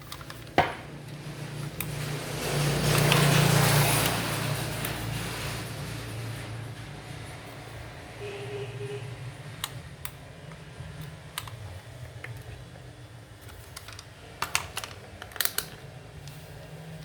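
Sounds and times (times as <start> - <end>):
clicks of tools and plastic parts: 9.6 - 12.6, 13.4 - 16.4.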